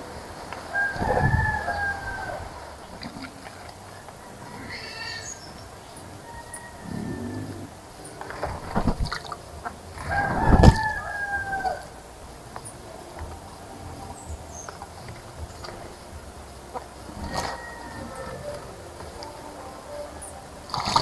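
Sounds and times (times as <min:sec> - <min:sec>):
rooster crowing: 0:00.0 - 0:03.0, 0:03.9 - 0:07.9, 0:10.0 - 0:12.3, 0:16.6 - 0:21.0.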